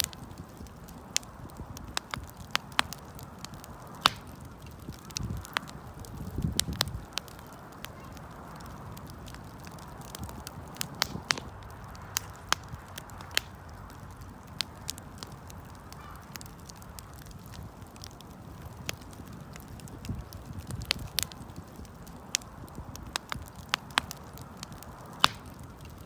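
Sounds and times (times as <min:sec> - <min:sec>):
campfire crackling: 0:00.0 - 0:26.0.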